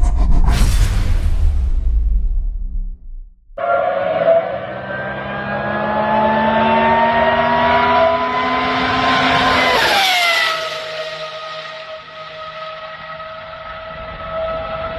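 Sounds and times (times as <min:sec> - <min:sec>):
car engine accelerating: 0:03.6 - 0:14.9.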